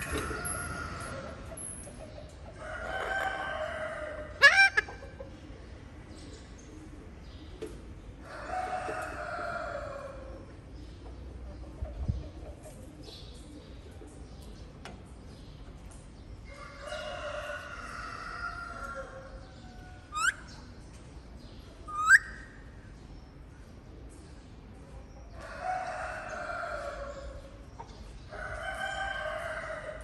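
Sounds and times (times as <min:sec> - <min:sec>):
long bird calls: 0:20.0 - 0:20.7, 0:21.8 - 0:22.7.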